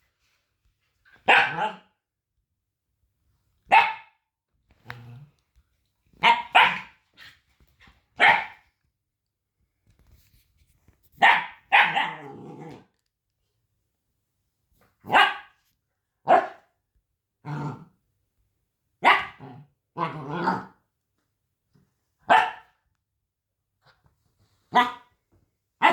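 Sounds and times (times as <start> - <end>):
puppy barking: 1.2 - 2.0, 3.7 - 4.2, 6.2 - 7.0, 8.2 - 8.6, 11.2 - 12.5, 15.0 - 15.6, 16.2 - 16.7, 19.0 - 20.2, 22.2 - 22.8, 24.7 - 25.1
puppy growling: 4.8 - 5.4, 12.0 - 13.0, 17.5 - 17.9, 19.4 - 20.8.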